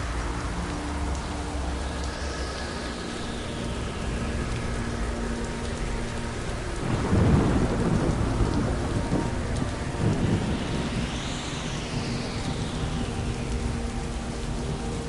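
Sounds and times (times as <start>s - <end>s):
steady rain falling: 0.0s - 15.0s
rumble of thunder: 6.8s - 14.9s.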